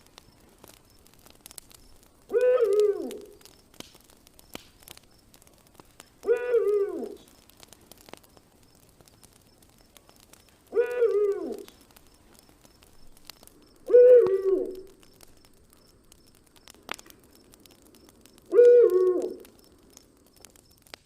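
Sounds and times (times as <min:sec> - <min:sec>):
faint campfire crackle: 0:00.0 - 0:21.0
animal call with falling pitch: 0:13.9 - 0:14.8.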